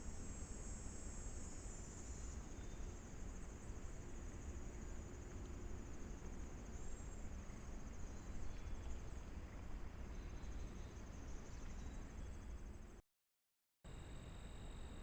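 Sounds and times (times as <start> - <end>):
insects trilling: 0.0 - 9.5.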